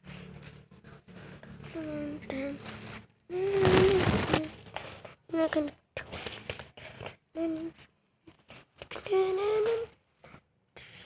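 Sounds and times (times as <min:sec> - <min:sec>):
person humming: 0:03.3 - 0:04.5, 0:07.4 - 0:07.8.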